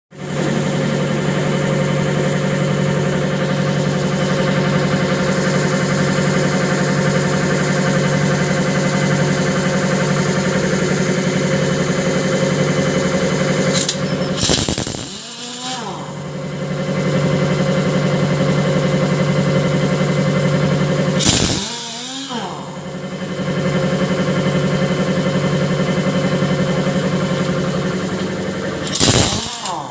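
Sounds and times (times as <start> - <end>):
motor humming and hissing: 0.2 - 16.3, 21.2 - 22.8, 28.2 - 29.9.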